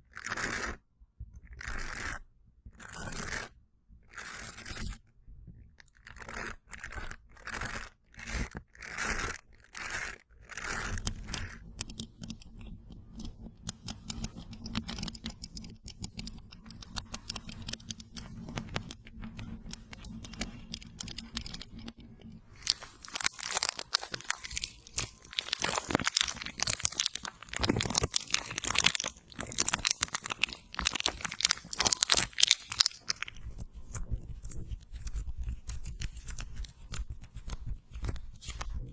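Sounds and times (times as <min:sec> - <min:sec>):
slime squelching: 0:13.8 - 0:38.6
plastic crinkling: 0:14.0 - 0:38.9.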